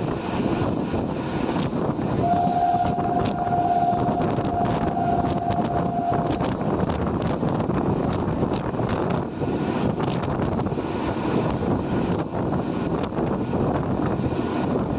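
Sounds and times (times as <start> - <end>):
train passing: 0.0 - 14.9
train horn blast: 2.2 - 6.6.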